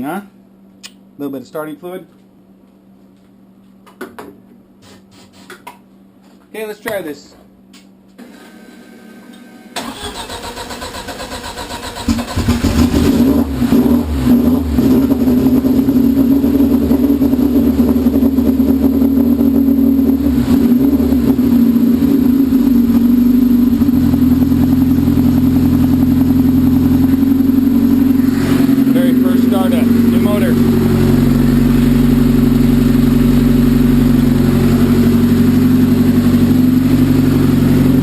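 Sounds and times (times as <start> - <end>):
car starter cranking: 9.8 - 13.0
car engine revving and idling: 10.5 - 38.0.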